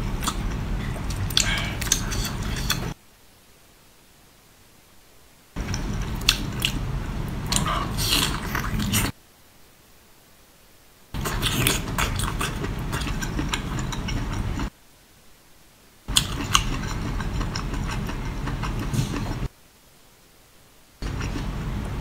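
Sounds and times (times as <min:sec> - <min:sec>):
chewing with crisp clicks: 0:00.2 - 0:03.0, 0:05.6 - 0:06.8, 0:11.2 - 0:14.7, 0:16.1 - 0:19.5, 0:21.0 - 0:21.5.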